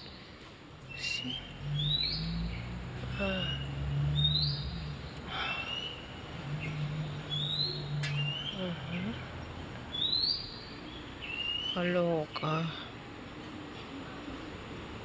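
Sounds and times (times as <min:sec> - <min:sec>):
steady low hum: 0:00.0 - 0:15.0
small bird chirping: 0:00.9 - 0:12.5.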